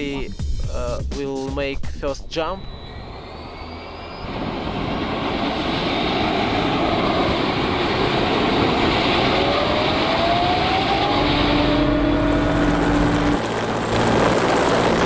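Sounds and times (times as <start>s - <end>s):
faint rising whistle: 2.2s - 7.3s, 9.2s - 13.8s
rushing wind: 2.3s - 15.0s.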